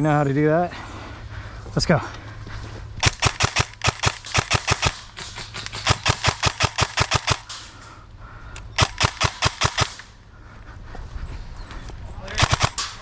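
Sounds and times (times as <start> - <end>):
airsoft guns firing rapidly: 3.0 - 7.7, 8.8 - 10.1, 12.3 - 13.0.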